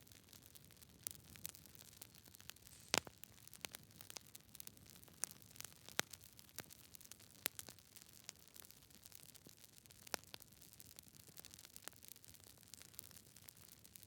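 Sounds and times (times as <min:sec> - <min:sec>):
campfire crackling: 0:00.0 - 0:14.0
faint hiss: 0:02.5 - 0:03.4.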